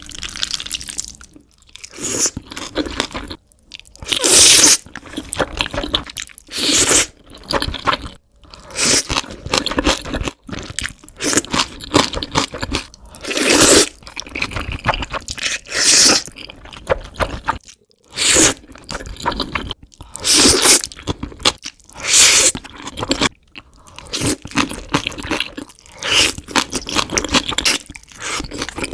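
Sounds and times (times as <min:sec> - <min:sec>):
slurping noodles: 0:06.5 - 0:07.2, 0:15.5 - 0:16.3.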